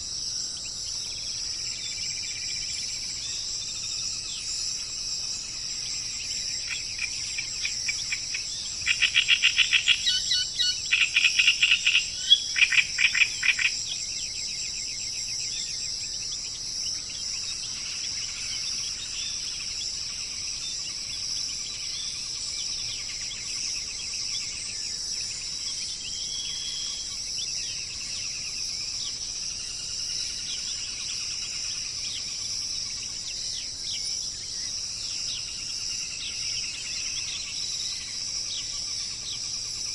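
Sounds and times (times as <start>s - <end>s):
faint bird chirps: 0.0s - 39.9s
high-pitched insect chorus: 0.0s - 39.9s.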